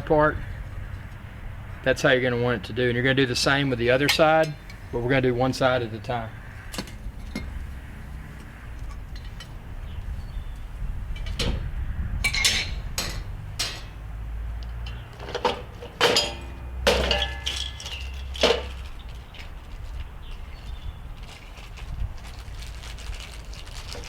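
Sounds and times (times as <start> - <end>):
metal grill parts clanking: 2.7 - 10.0, 11.1 - 19.6.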